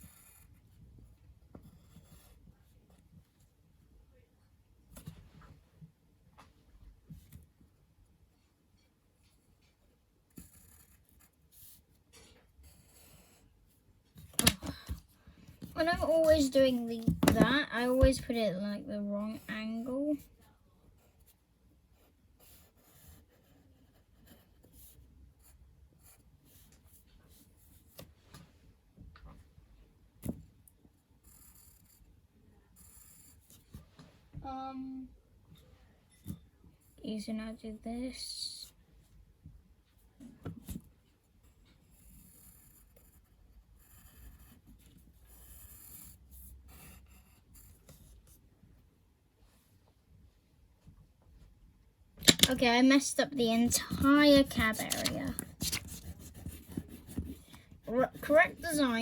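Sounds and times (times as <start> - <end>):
pencil scratching on paper: 0.0 - 0.8, 1.6 - 2.4, 10.3 - 13.6, 15.6 - 18.5, 21.0 - 28.0, 31.2 - 33.9, 41.4 - 48.4, 52.2 - 59.0.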